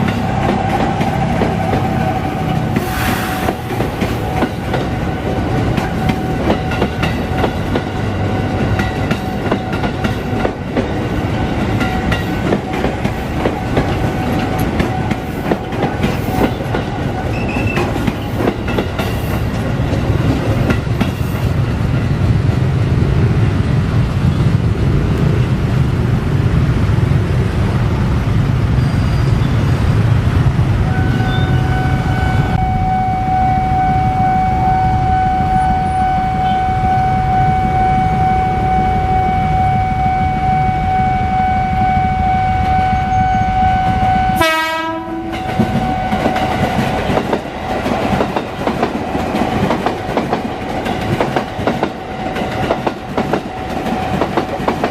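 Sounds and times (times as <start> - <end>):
train rumbling with wheel clatter: 0.0 - 32.6, 33.2 - 54.9
steady high-pitched tone: 31.1 - 44.4.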